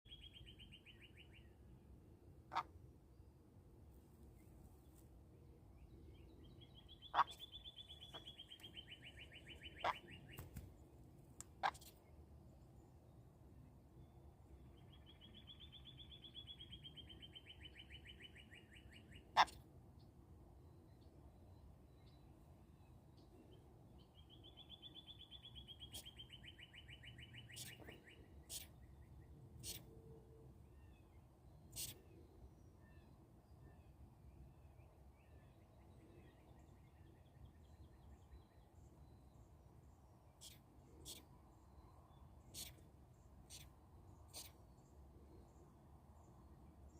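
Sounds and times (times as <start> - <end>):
sharp bird calls: 6.7 - 10.6, 24.3 - 28.9, 42.4 - 42.8, 43.5 - 44.6.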